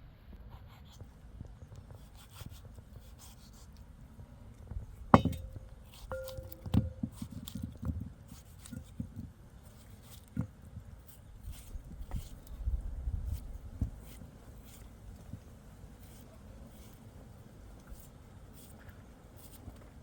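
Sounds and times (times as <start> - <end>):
cookware clinking: 5.2 - 7.0.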